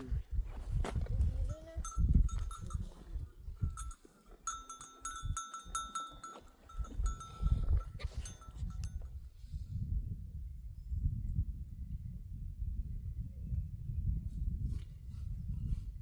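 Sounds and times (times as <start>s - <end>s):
goat bells jangling: 1.5s - 9.2s.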